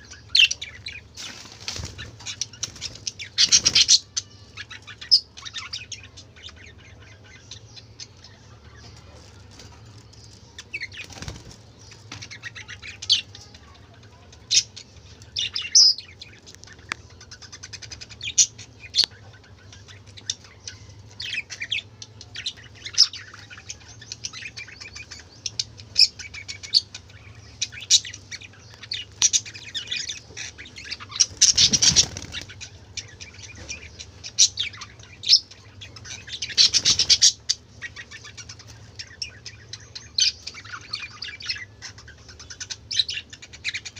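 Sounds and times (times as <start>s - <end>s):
budgerigars chirping: 0.0s - 43.9s
faint low hum: 0.0s - 43.9s
wing flapping: 31.3s - 32.6s.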